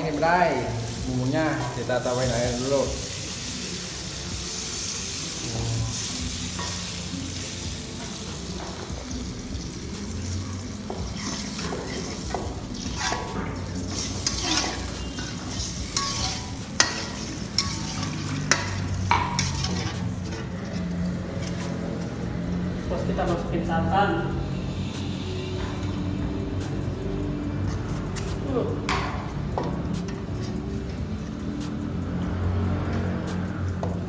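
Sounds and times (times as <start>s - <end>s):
spice paste sizzling in oil: 0.0s - 34.0s
spatula scraping a pan: 10.1s - 21.7s.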